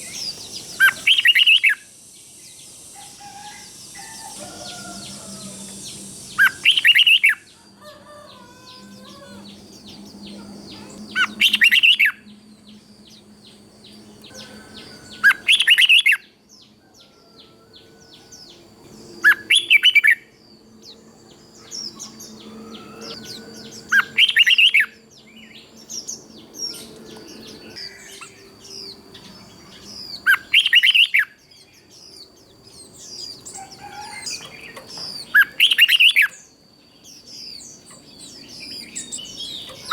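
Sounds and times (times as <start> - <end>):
bird singing song phrases: 0.0 - 39.9
faint bird chirps: 0.0 - 39.9
faint steady high tone: 26.8 - 30.3.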